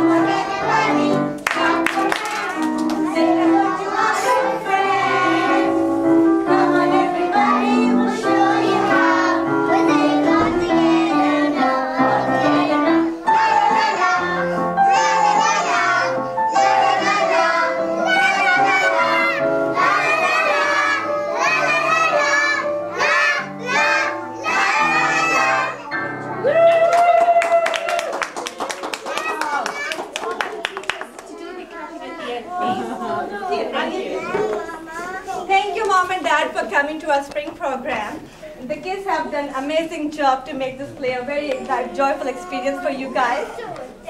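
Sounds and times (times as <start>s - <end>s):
young children singing: 0.0s - 26.2s, 31.4s - 35.8s.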